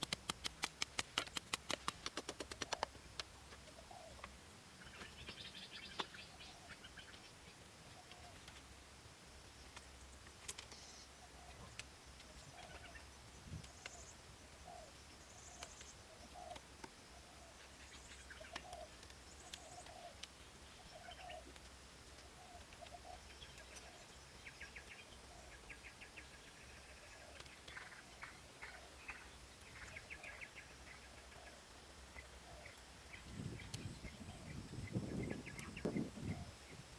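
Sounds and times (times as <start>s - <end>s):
faint clicks: 0.0s - 4.4s, 9.6s - 14.1s, 15.4s - 17.0s, 18.1s - 20.4s, 21.0s - 24.0s.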